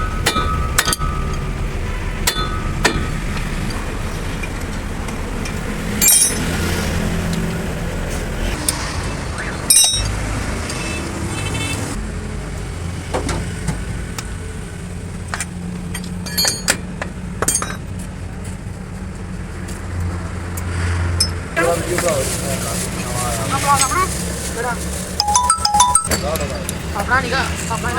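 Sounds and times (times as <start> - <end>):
metal striking metal: 0.0 - 3.5, 6.0 - 6.6.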